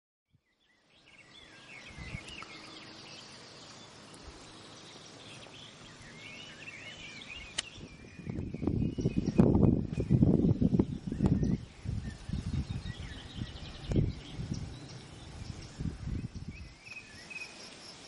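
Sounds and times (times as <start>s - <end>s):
wind rumble on microphone: 0.3s - 3.3s, 4.2s - 17.6s
faint outdoor background noise: 0.3s - 18.0s
songbirds chirping and warbling: 0.3s - 18.0s
sharp click: 7.5s - 7.8s.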